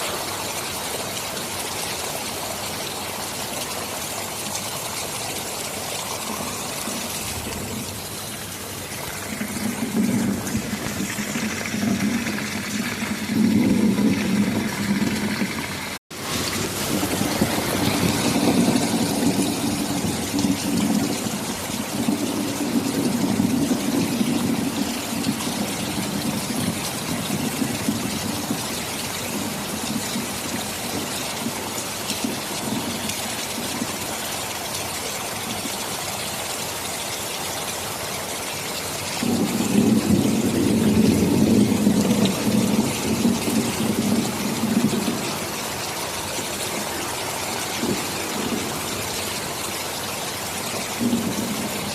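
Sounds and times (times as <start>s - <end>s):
heavy rain: 0.0s - 51.9s
thunder rolling: 5.9s - 33.7s, 39.2s - 49.6s, 50.7s - 51.9s.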